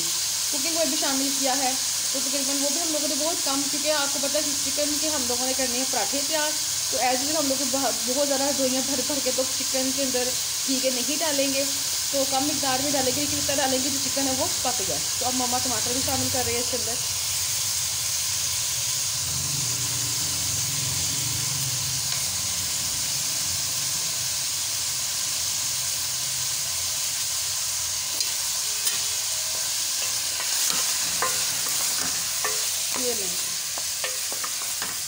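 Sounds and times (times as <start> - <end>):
food sizzling in hot oil: 0.0 - 35.0
wooden spoon stirring: 29.9 - 35.0.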